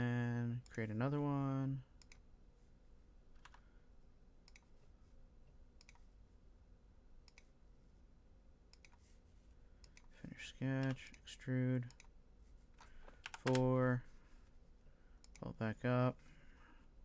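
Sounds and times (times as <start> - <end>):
computer mouse clicks: 2.0 - 2.2, 3.4 - 3.6, 4.4 - 4.7, 5.8 - 6.1, 7.2 - 7.5, 8.7 - 9.1, 9.8 - 10.2, 11.8 - 12.2, 12.8 - 13.7, 15.2 - 15.5.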